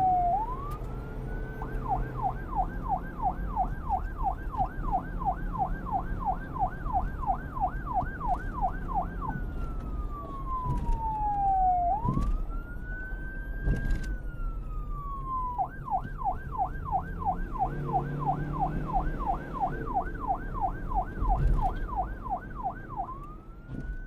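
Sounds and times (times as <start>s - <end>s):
emergency vehicle siren: 0.0s - 24.0s
low traffic rumble: 0.0s - 24.0s.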